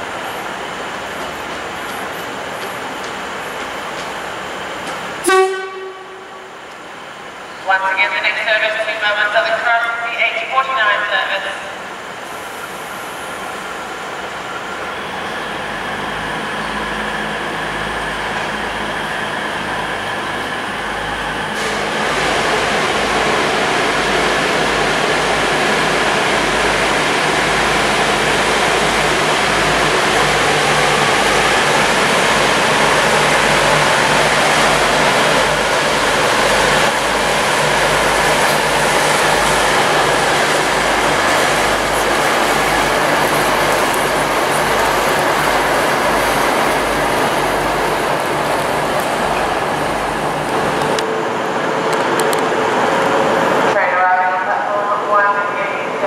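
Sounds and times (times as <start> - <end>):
train diesel engine drone: 0.0 - 56.0
train wheel and rail noise: 0.0 - 56.0.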